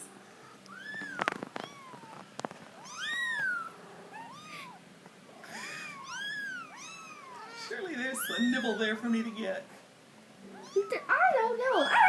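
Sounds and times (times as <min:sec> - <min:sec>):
kitten mewing: 0:05.5 - 0:09.5.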